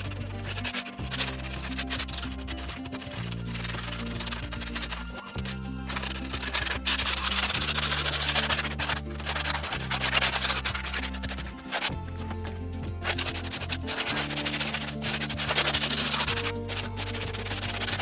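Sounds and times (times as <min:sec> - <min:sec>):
background music with bass: 0:00.0 - 0:18.0
sanding fiberglass: 0:00.0 - 0:18.0.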